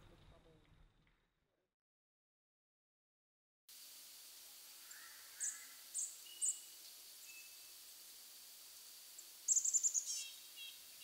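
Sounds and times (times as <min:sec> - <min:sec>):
faint steady hiss: 0:03.7 - 0:11.0
small birds chirping: 0:04.8 - 0:11.0.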